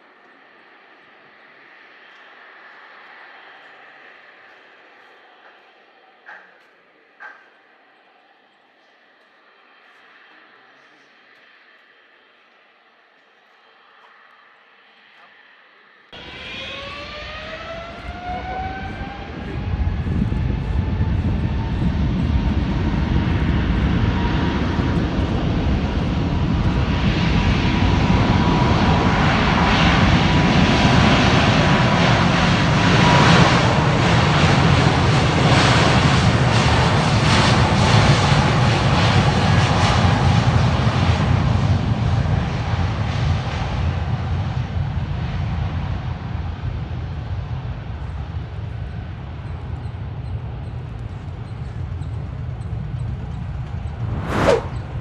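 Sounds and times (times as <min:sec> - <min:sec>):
jet engine whine: 0:00.0 - 0:55.0
loud jet engine roar: 0:16.2 - 0:43.6, 0:53.7 - 0:55.0.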